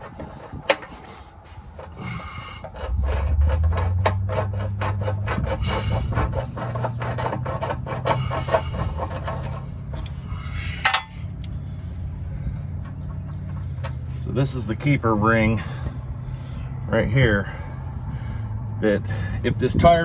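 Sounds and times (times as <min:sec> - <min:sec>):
scraping strokes on metal: 0:00.0 - 0:11.9
low engine hum: 0:00.0 - 0:20.0.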